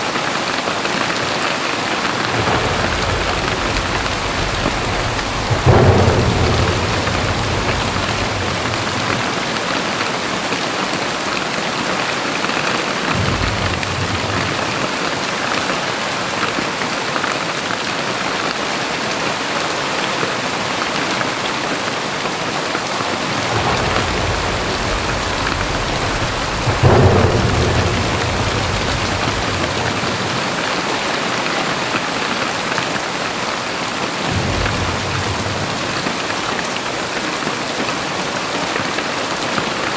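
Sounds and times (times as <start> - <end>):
heavy rain pouring: 0.0 - 39.9
thunder rumbles: 1.1 - 11.6, 12.7 - 15.9, 23.0 - 39.9.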